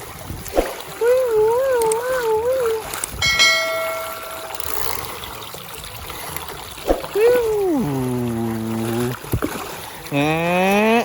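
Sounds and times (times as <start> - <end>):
bright bell-like ding: 3.2 - 5.3.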